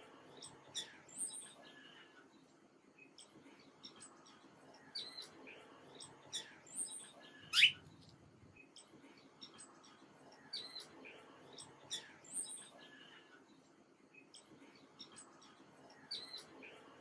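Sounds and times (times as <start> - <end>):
songbirds chirping: 0.0 - 17.0
loud sharp rising bird chirp: 7.6 - 7.8.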